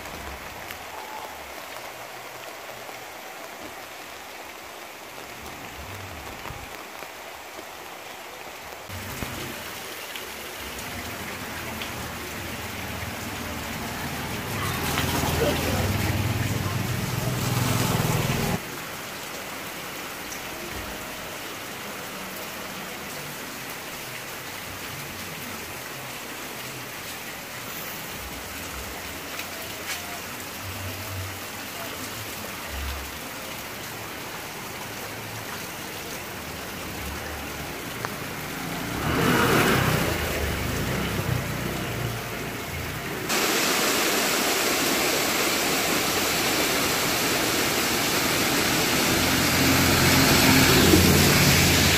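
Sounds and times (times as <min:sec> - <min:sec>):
rushing water: 0:00.0 - 0:51.9.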